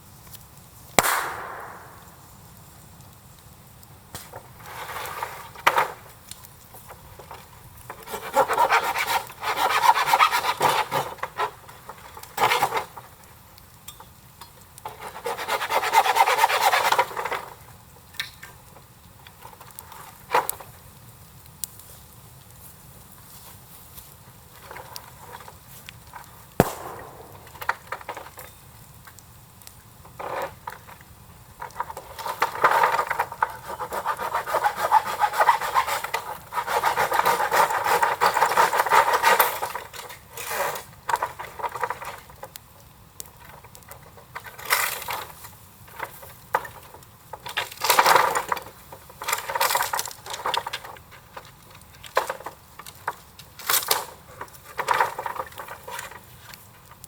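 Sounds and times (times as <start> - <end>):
sharp knock: 1.0 - 2.2
scraping and rubbing: 8.0 - 11.5, 32.2 - 39.4.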